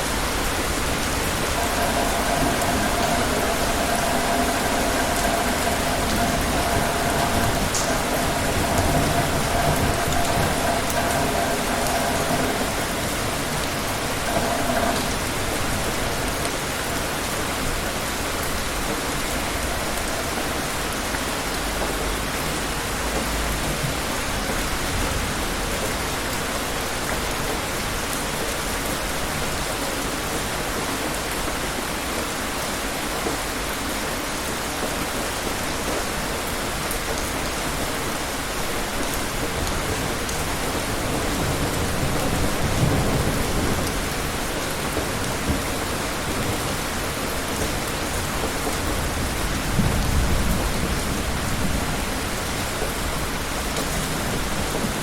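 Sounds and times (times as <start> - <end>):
distant thunder rumble: 0.0 - 17.9
heavy rain falling: 0.0 - 55.0
steady hum: 0.4 - 17.3.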